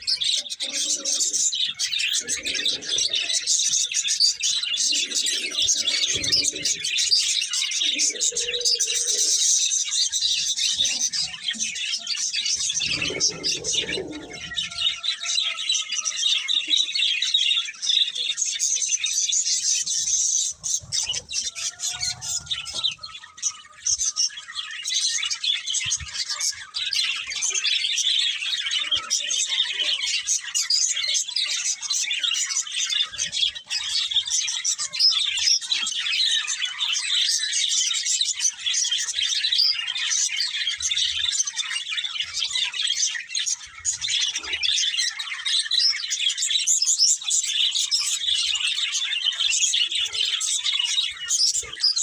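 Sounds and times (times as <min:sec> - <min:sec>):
budgerigars chirping and warbling: 0:00.0 - 0:52.0.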